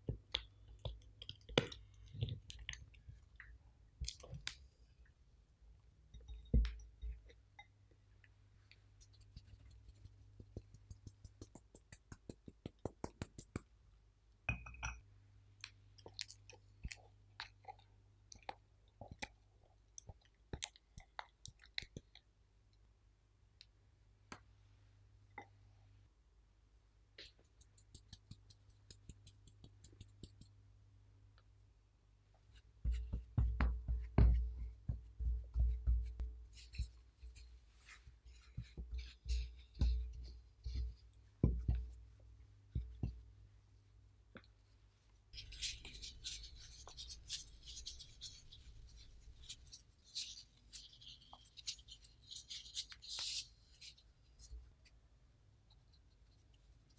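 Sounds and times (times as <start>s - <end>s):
wet clicks of sticky food: 0.1s - 4.6s, 15.6s - 22.3s.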